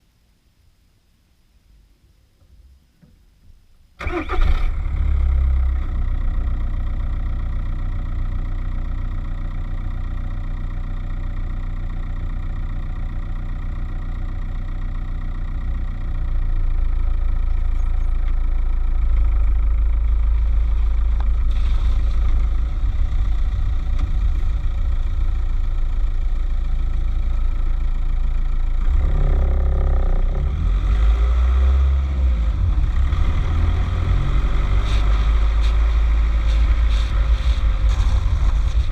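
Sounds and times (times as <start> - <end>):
diesel engine clattering: 5.6 - 31.0.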